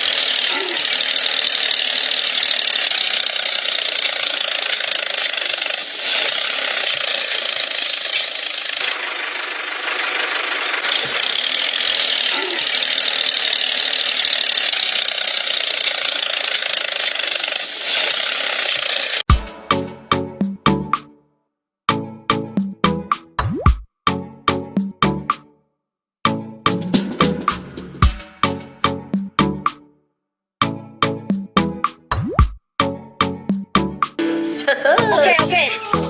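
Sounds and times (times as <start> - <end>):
small electric motor and gears whining: 0.0 - 19.3.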